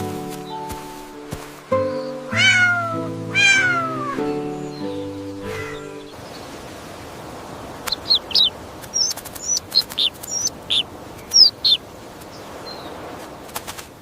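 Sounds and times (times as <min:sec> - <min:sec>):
outdoor hiss: 0:00.0 - 0:14.0
small bird chirping: 0:01.9 - 0:06.5, 0:07.8 - 0:13.0.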